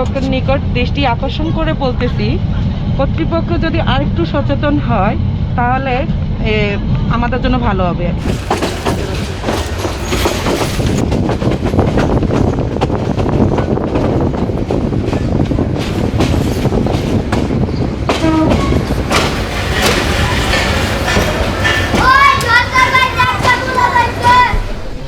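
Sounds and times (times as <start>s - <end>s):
train rumbling along track: 0.0s - 25.0s
wheels clicking over rail joints: 8.2s - 24.8s.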